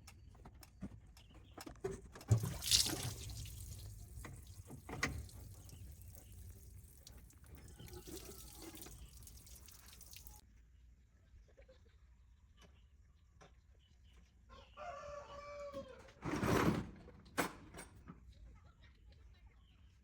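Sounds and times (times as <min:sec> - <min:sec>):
water running and splashing: 0:02.3 - 0:10.4.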